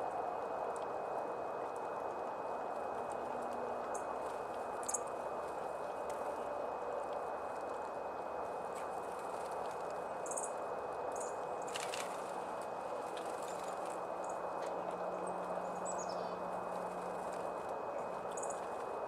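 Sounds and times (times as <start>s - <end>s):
steady background hiss: 0.0s - 19.0s
small birds chirping: 15.6s - 16.4s.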